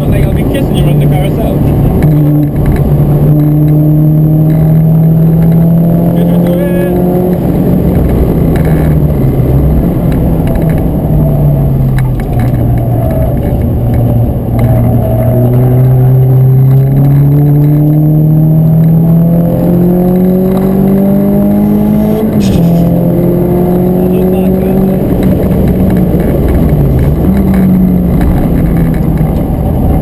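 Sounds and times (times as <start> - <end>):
car engine accelerating: 0.0 - 30.0
tyre and road noise: 0.0 - 30.0.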